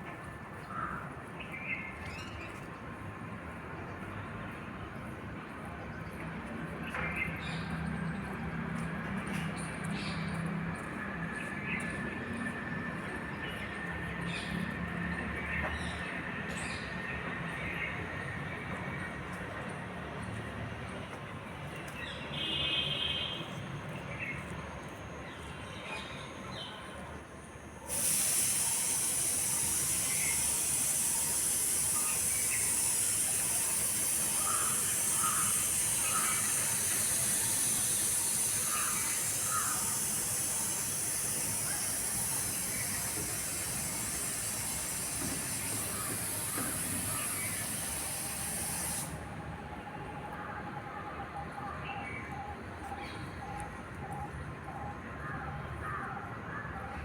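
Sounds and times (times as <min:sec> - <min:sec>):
loud high hiss: 0:27.5 - 0:49.4.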